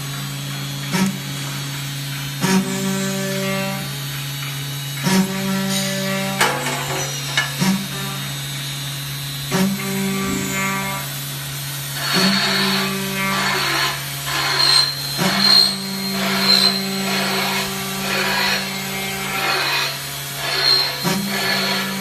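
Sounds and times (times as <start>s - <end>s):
milling machine motor hum: 0.0s - 22.0s
metal cutting bursts: 2.3s - 22.0s
high whine: 9.6s - 13.0s.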